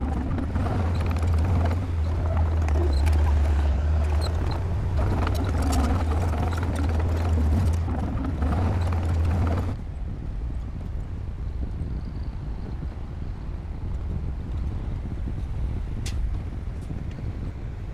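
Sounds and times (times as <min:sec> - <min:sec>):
bulldozer diesel engine: 0:00.0 - 0:09.8
metallic clanking and scraping: 0:00.0 - 0:09.8.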